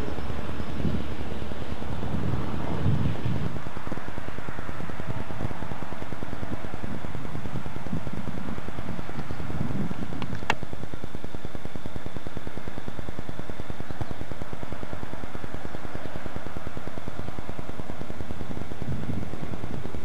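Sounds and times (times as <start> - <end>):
distant freight train rumbling: 0.0 - 20.0
sharp click: 9.9 - 10.7.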